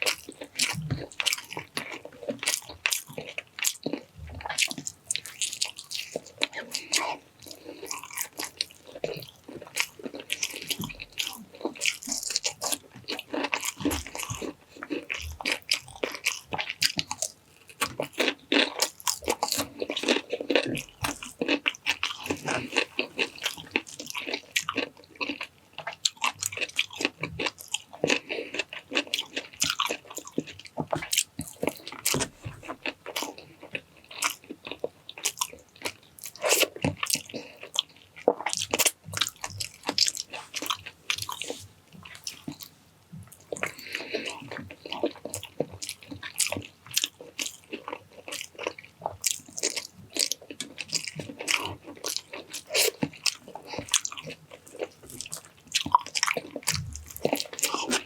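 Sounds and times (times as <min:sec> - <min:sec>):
crunching bites and wet chewing: 0:00.0 - 0:58.0.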